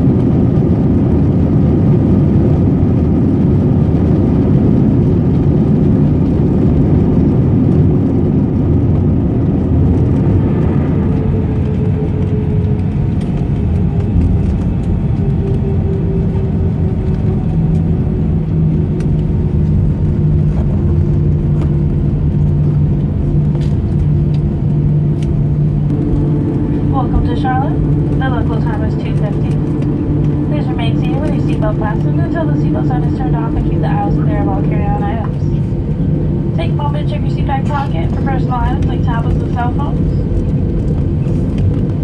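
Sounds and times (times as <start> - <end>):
jet engines rumbling: 0.0 - 42.0
steady humming tones: 9.6 - 42.0.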